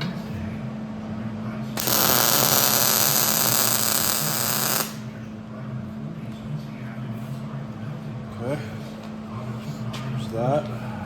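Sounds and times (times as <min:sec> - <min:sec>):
welding arc crackling: 0:01.8 - 0:05.1.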